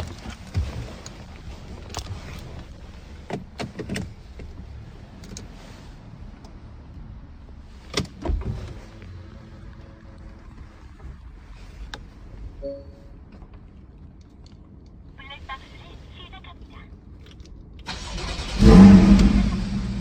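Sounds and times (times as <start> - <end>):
car engine exhaust rumble: 17.0 - 20.0.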